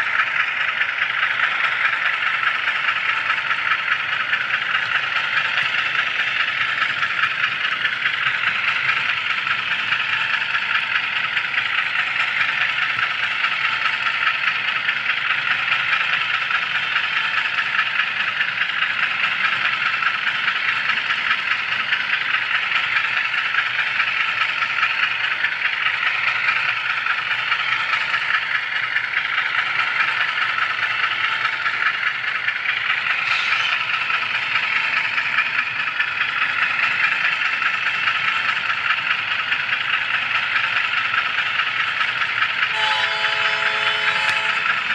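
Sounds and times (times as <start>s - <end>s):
model train wheels rattling on rails: 0.0s - 44.9s.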